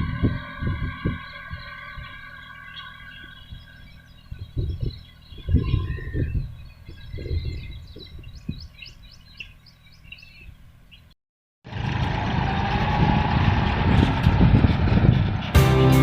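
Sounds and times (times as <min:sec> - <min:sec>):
tractor engine rumbling: 0:00.0 - 0:10.0, 0:10.6 - 0:16.0
birds chirping: 0:00.0 - 0:11.2.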